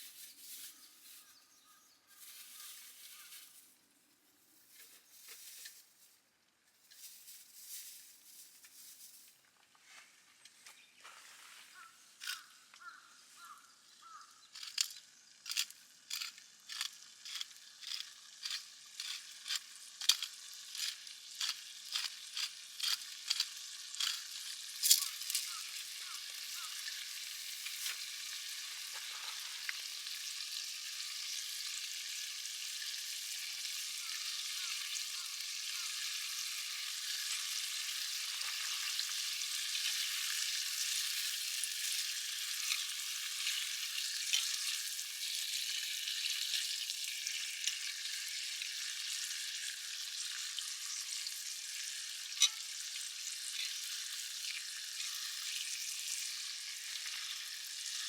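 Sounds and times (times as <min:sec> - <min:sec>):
steady sizzle: 0:00.0 - 0:10.0, 0:11.4 - 0:58.0
food frying with spattering pops: 0:12.2 - 0:58.0.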